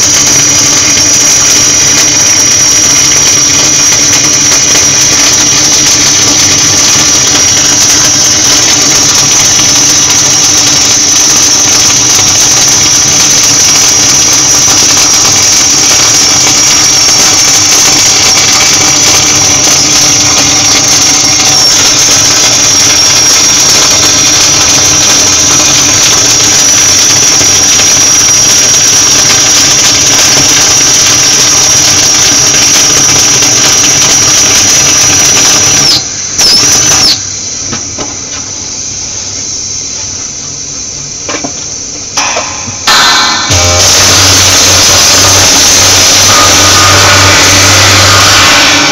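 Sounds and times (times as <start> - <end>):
high-pitched welding whine: 0.0 - 48.9
welding arc crackle and hiss: 0.0 - 48.9.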